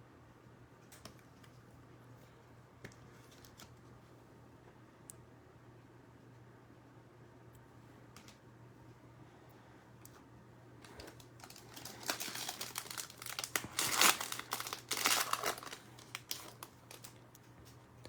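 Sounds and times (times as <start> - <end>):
plastic wrapper crinkling and tearing: 10.8 - 17.5.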